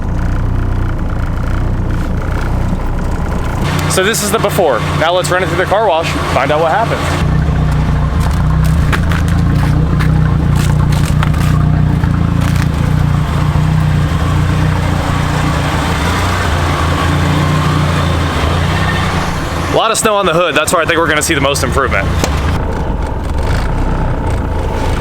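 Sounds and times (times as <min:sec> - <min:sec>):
car engine running at low revs: 0:00.0 - 0:25.0
sharp clicks and crackles: 0:07.7 - 0:13.2, 0:22.2 - 0:25.0.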